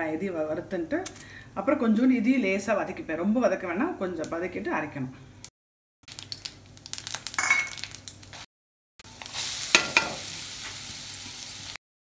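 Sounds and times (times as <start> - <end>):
spices crackling in oil: 6.0 - 8.5, 9.1 - 11.8
steady sizzle in hot oil: 6.0 - 11.8.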